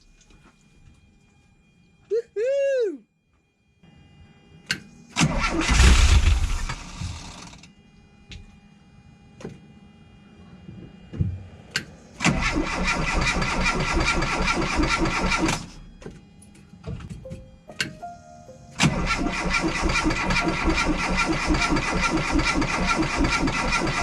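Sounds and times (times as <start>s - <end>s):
engine cranking on starter: 5.2s - 7.6s, 12.2s - 15.8s, 18.8s - 24.0s
engine running: 5.2s - 7.6s, 18.8s - 24.0s.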